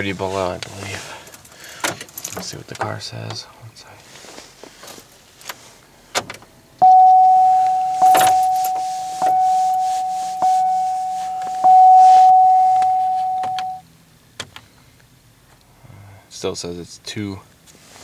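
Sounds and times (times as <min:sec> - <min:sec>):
car keys jingling: 0:01.2 - 0:03.0, 0:06.2 - 0:13.8
dashboard warning chime: 0:06.8 - 0:13.8.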